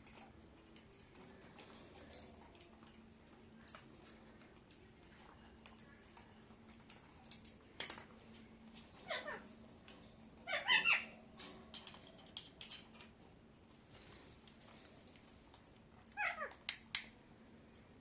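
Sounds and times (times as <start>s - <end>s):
parrot calling: 9.0s - 9.5s, 10.4s - 11.2s, 16.1s - 16.6s
parrot squawky chatter: 9.0s - 9.5s, 10.4s - 11.2s.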